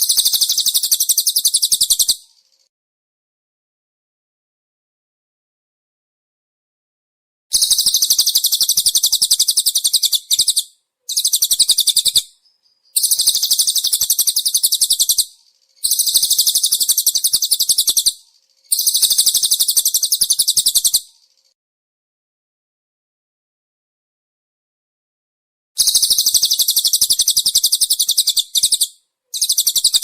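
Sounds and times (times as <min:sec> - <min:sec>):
songbird fast high-pitched call: 0:00.0 - 0:02.7, 0:07.5 - 0:21.6, 0:25.8 - 0:30.0.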